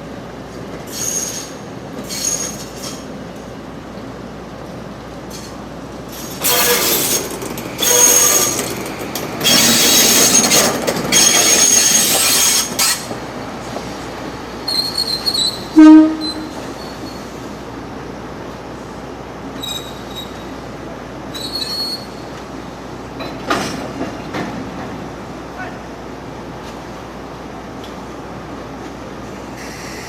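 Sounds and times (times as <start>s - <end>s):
train wheels squealing: 0.9s - 3.1s, 6.2s - 13.1s, 14.6s - 17.4s, 19.6s - 20.6s, 21.3s - 22.4s, 29.5s - 30.0s
short train horn blast: 15.7s - 16.7s.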